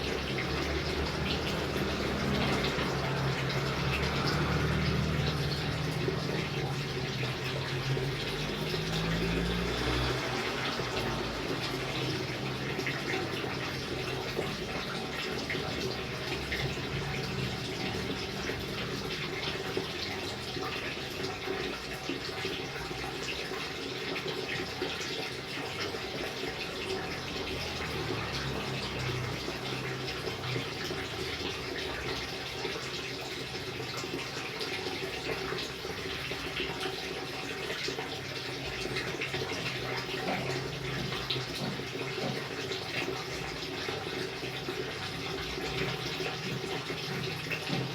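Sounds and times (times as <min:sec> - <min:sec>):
steady rain: 0:00.0 - 0:20.7, 0:26.9 - 0:32.5.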